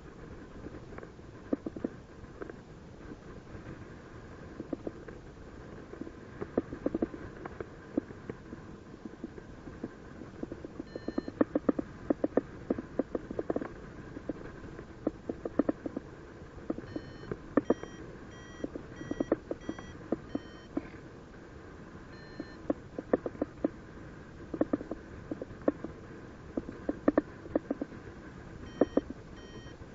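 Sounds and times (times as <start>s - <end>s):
irregular clicks and crackles: 0.2s - 21.1s, 22.1s - 29.8s
variometer beeping: 10.8s - 12.3s, 16.7s - 20.8s, 22.1s - 22.8s, 28.6s - 29.8s.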